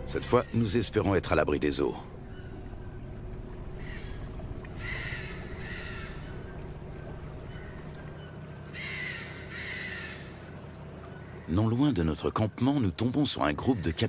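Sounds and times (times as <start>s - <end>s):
rainforest background: 0.0s - 14.0s.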